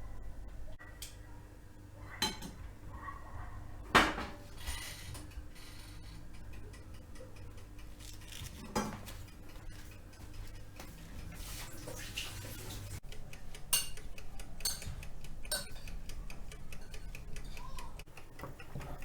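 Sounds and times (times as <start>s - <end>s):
metal utensils clinking on cookware: 13.7s - 14.0s, 14.6s - 16.0s.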